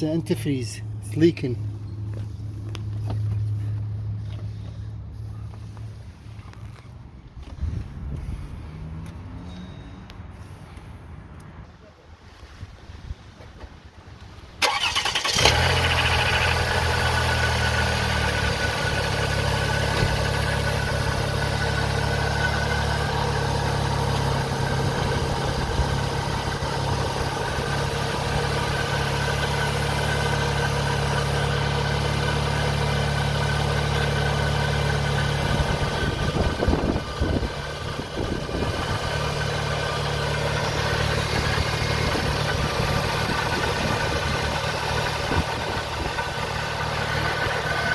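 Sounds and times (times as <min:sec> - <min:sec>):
car engine starting and idling: 0:14.5 - 0:47.9.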